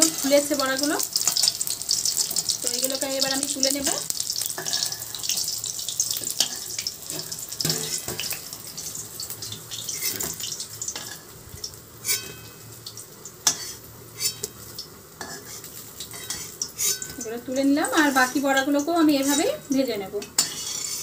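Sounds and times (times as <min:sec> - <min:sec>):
fritters sizzling in oil: 0:00.0 - 0:21.0
metal spatula scraping: 0:04.5 - 0:05.4, 0:06.2 - 0:09.0, 0:09.8 - 0:10.4, 0:12.0 - 0:12.6, 0:13.4 - 0:14.6, 0:15.2 - 0:21.0.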